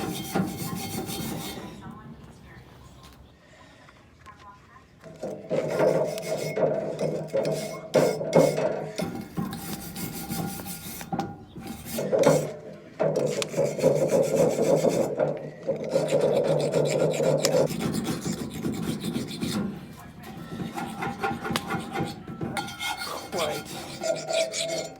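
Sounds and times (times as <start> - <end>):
wire brush scrubbing a pan: 0.0 - 1.9, 5.2 - 24.9.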